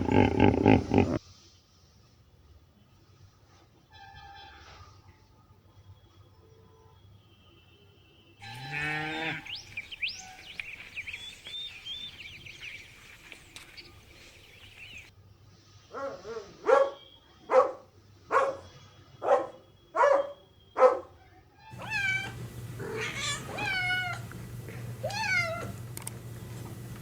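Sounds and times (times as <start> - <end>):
low animal call rising in pitch: 0.0 - 1.2, 8.4 - 10.5
bird-like chirping: 8.4 - 15.1, 21.7 - 27.0
short loud animal calls: 8.4 - 15.1, 21.7 - 26.9.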